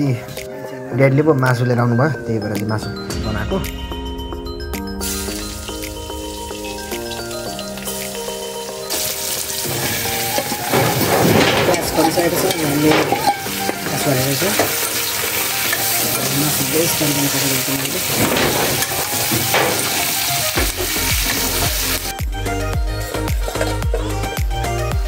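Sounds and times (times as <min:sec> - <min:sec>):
meat sizzling in hot oil: 0:05.0 - 0:11.1, 0:11.8 - 0:22.2
metal spoon scraping a pan: 0:08.9 - 0:22.0.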